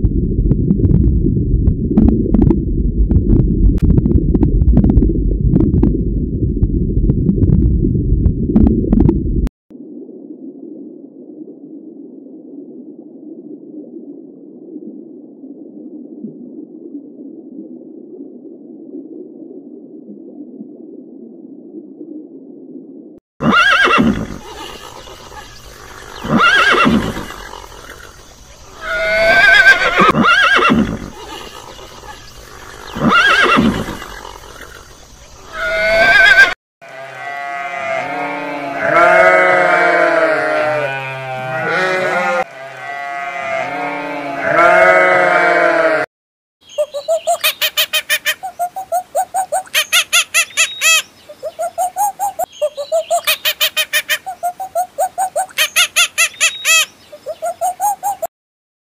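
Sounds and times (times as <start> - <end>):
horses neighing: 23.4 - 34.9, 35.5 - 46.1
sheep bleating: 36.8 - 46.1.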